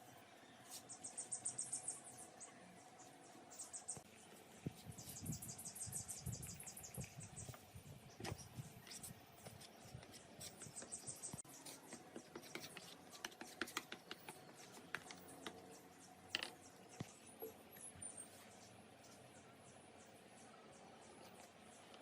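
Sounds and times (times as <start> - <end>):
faint clicks taps and scratching: 8.9 - 15.6.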